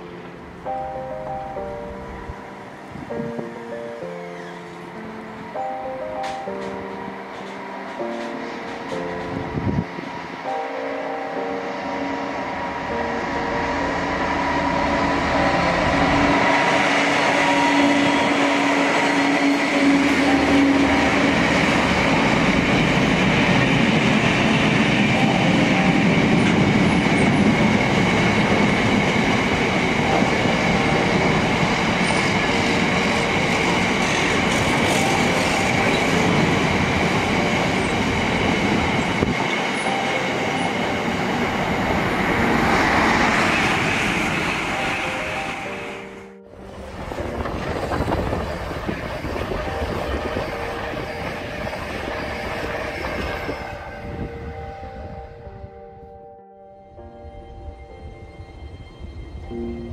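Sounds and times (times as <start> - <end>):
diesel locomotive engine running: 6.6 - 55.1.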